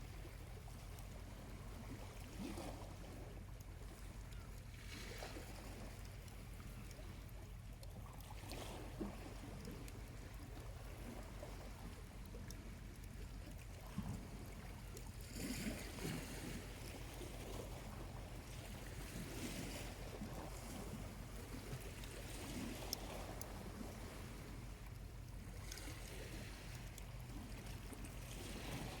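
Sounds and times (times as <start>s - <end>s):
small waves washing on beach: 0.0s - 29.0s
faint campfire ticks: 0.7s - 1.3s, 3.4s - 8.7s, 9.3s - 15.2s, 21.3s - 28.4s.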